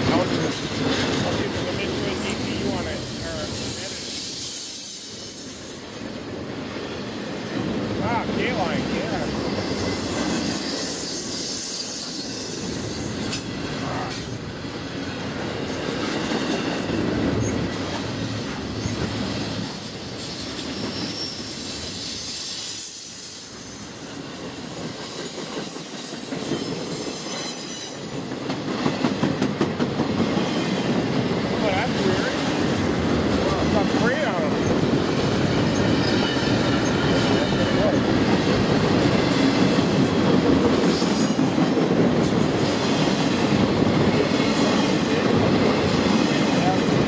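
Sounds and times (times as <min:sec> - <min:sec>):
freight train wheels rumbling: 0:00.0 - 0:47.0
faint high wheel squeal: 0:20.2 - 0:24.0.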